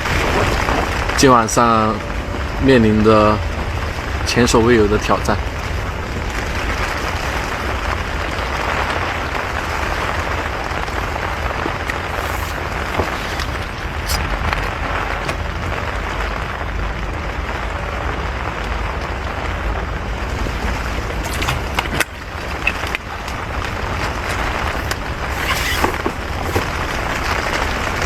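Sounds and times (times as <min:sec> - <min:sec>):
rain on a tent: 0:00.0 - 0:28.0
wind buffeting a tent: 0:00.0 - 0:28.0
sharp taps and rattles: 0:21.1 - 0:27.2.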